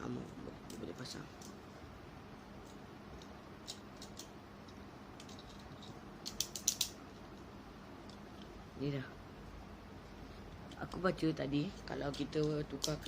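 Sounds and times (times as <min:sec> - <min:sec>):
small plastic parts clicking: 0:02.6 - 0:07.0, 0:12.0 - 0:13.0.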